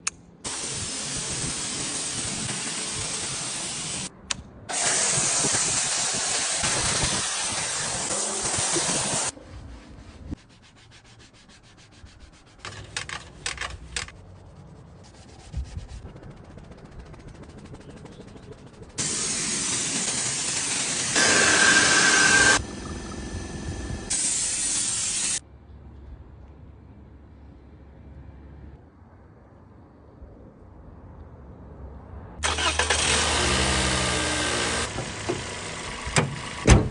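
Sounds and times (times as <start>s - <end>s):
spray hissing onto engine: 0.5s - 4.1s, 4.7s - 9.4s, 19.0s - 22.6s, 24.1s - 25.4s.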